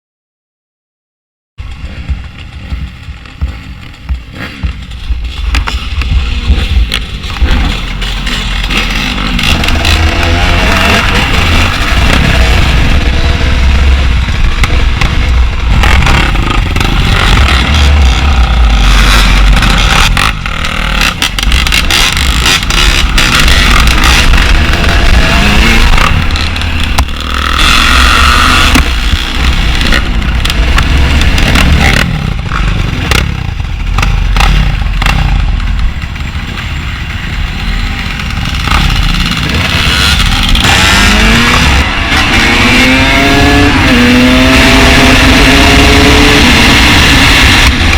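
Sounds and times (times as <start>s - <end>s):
dirt bike engine revving: 1.7s - 47.9s
knocks and rattles: 1.8s - 13.0s.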